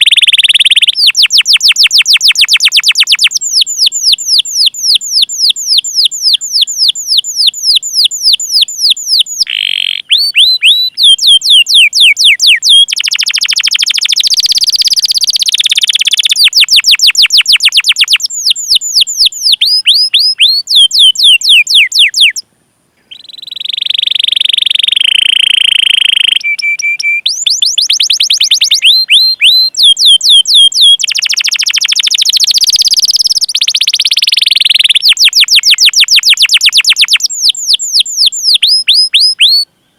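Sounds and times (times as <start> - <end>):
canary singing: 0.0 - 22.4, 23.0 - 39.7.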